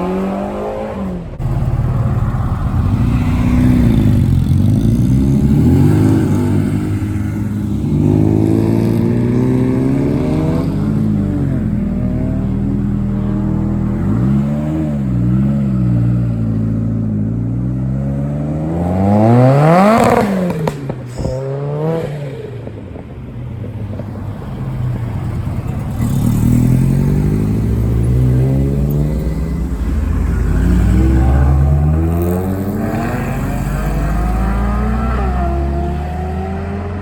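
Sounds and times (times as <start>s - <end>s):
car engine revving: 0.0s - 23.0s, 23.9s - 37.0s
car engine rising in pitch: 26.2s - 37.0s.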